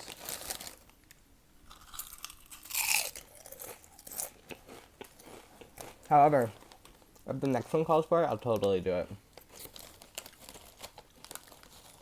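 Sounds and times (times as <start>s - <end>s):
person chewing crunchy chips: 0.0s - 0.8s, 1.7s - 7.3s, 9.4s - 12.0s.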